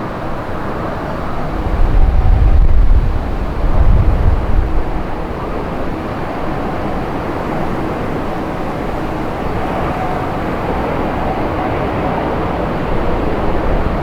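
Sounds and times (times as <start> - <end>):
jet engines roaring: 0.0 - 14.0
wind buffeting microphone: 0.5 - 14.0.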